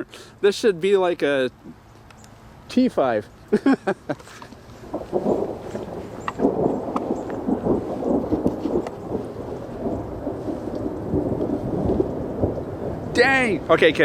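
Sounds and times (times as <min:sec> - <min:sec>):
thunder rumbling: 0:04.8 - 0:14.0.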